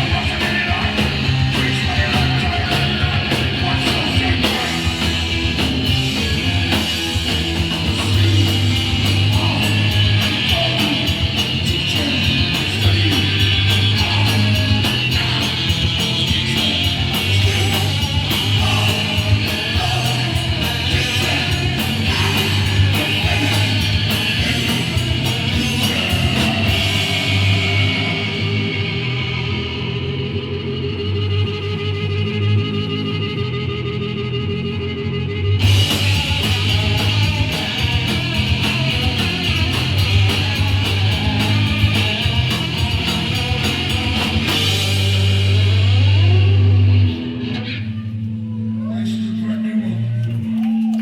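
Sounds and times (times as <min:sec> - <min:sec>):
fast driving drums: 0:00.0 - 0:30.6, 0:35.6 - 0:47.4
bass guitar: 0:00.0 - 0:51.0
distorted electric guitar: 0:00.0 - 0:51.0
shouted vocals: 0:08.0 - 0:28.4.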